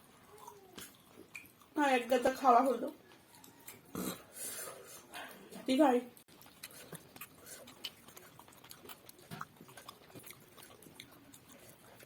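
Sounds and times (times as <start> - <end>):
chewing with wet smacks: 0.1 - 2.3, 2.9 - 4.3, 6.1 - 12.0.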